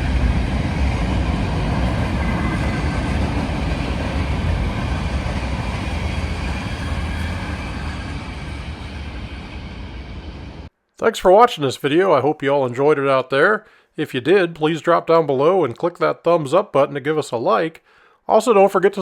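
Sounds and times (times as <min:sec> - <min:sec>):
freight train wheels rumbling: 0:00.0 - 0:10.7.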